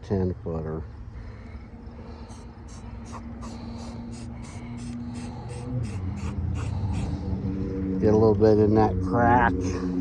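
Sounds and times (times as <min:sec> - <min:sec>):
low hum: 0:01.0 - 0:10.0
scratchy rubbing strokes: 0:02.2 - 0:07.2.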